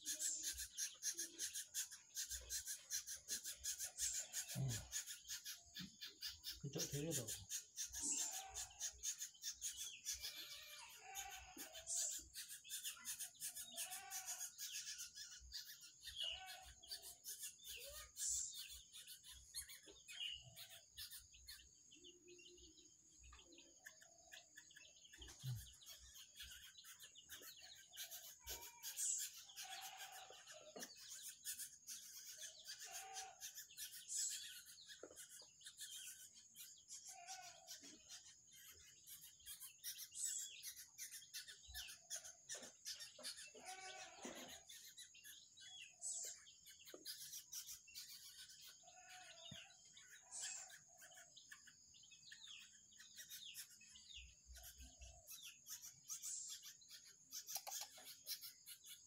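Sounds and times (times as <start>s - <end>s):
chicks chirping and clucking: 6.2s - 7.3s.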